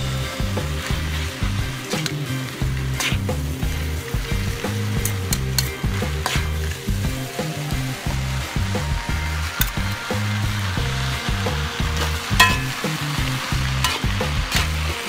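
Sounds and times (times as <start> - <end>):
metal spatula scraping a wok: 0.0 - 8.2, 11.9 - 15.0
noodles sizzling in a wok: 0.0 - 15.0.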